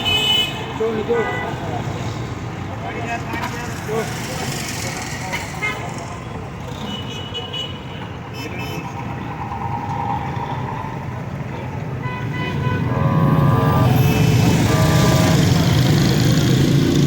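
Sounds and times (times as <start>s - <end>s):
car horn: 0.0s - 1.6s, 12.0s - 16.4s
vehicle engines running: 0.7s - 7.2s, 7.8s - 17.0s
loud engine rumble: 9.0s - 17.0s.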